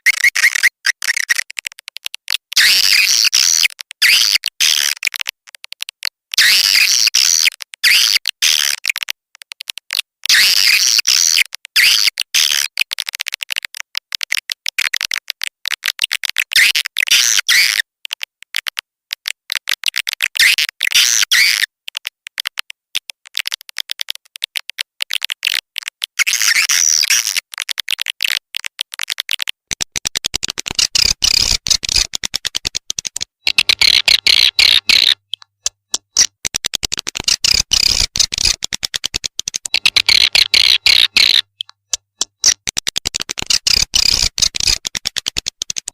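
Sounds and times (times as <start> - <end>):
swiftlet clicks and twittering: 0.0 - 45.9.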